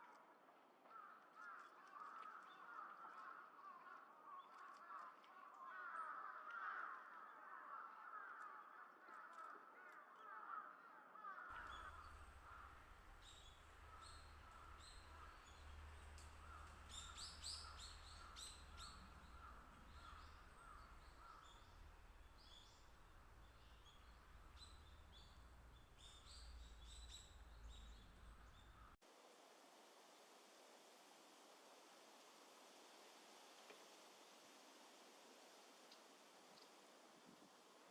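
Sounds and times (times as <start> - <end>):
high bird chirps: 11.6 - 29.0
low background rumble: 11.6 - 29.0.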